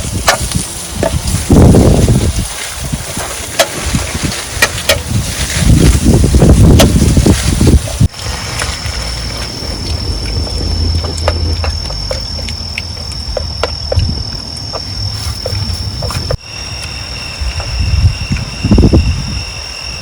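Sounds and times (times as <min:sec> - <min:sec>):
insects high-pitched calling: 0:00.0 - 0:20.0
lower insect tone: 0:00.0 - 0:20.0
low rumble: 0:05.1 - 0:20.0.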